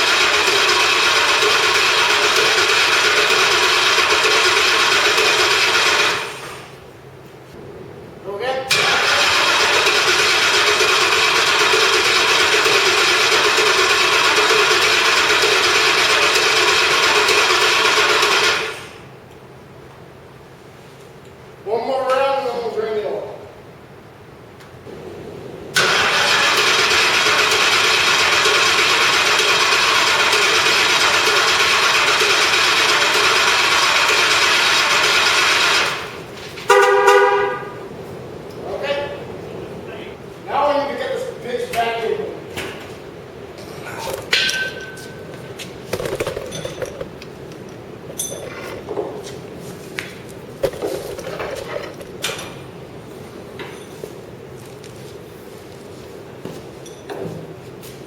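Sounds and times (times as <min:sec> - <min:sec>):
car engine cranking on starter: 0:00.0 - 0:06.8, 0:08.7 - 0:19.0, 0:25.8 - 0:36.3
metal tools clinking: 0:47.7 - 0:48.8.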